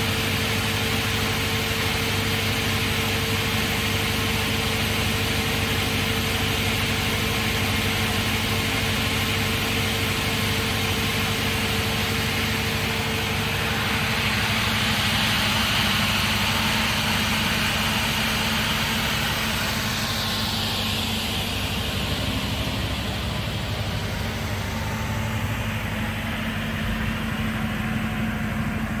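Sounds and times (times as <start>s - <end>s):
multi-rip saw running: 9.4s - 27.8s.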